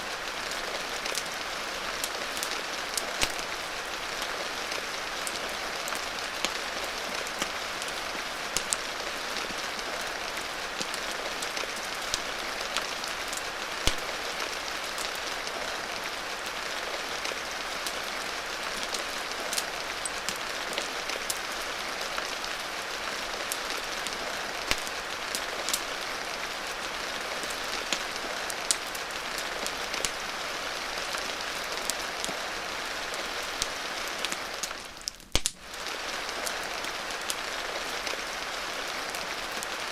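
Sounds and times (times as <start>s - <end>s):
heavy rain hissing: 0.0s - 35.0s, 35.6s - 39.9s
wood fire crackling and popping: 0.1s - 37.4s.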